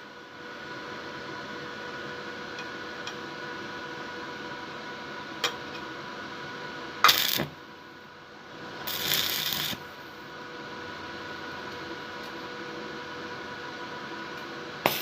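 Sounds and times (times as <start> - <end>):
electrical hum: 0.2 - 15.0
welding arc crackling and hissing: 7.0 - 7.6, 8.8 - 10.0.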